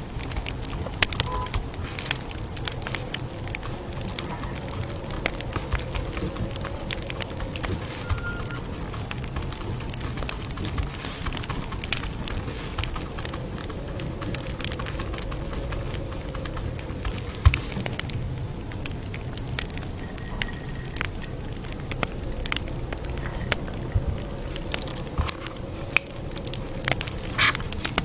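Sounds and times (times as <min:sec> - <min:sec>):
campfire crackling and popping: 0:00.0 - 0:28.0.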